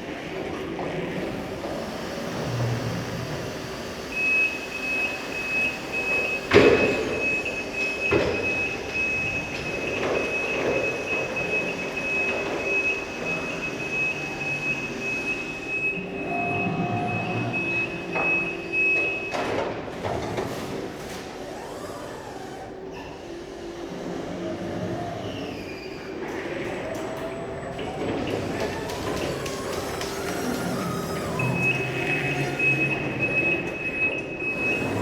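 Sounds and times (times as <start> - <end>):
forklift motor and hydraulics: 0.0 - 35.0
forklift warning tone: 3.2 - 19.5, 27.2 - 35.0.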